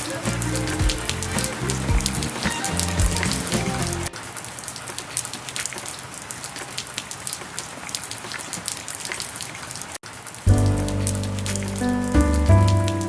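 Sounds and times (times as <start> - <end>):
background music: 0.0 - 4.1, 10.5 - 13.0.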